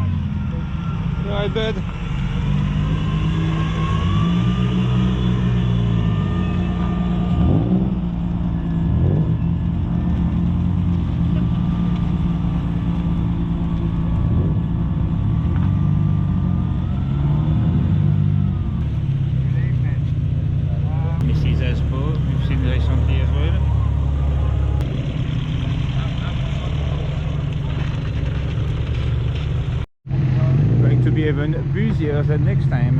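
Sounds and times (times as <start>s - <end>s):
engine rev blips: 0.0s - 20.2s
car engines running at low revs: 0.0s - 32.9s.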